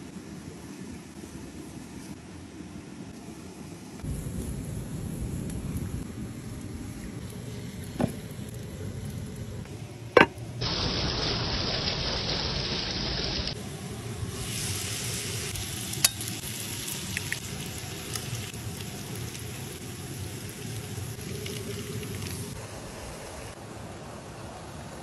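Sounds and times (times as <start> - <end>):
food sizzling in a pot: 10.2 - 22.6.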